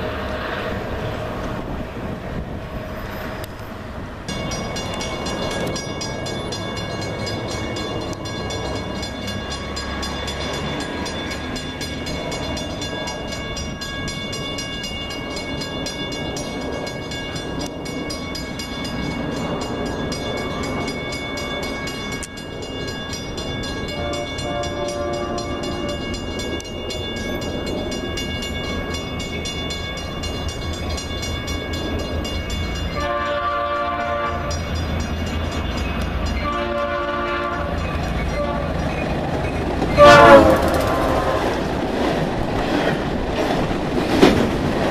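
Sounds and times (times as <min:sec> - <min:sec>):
train rumbling and whining: 0:00.0 - 0:44.9
train horn: 0:23.9 - 0:26.0, 0:32.9 - 0:34.6, 0:36.4 - 0:38.9, 0:39.9 - 0:41.7.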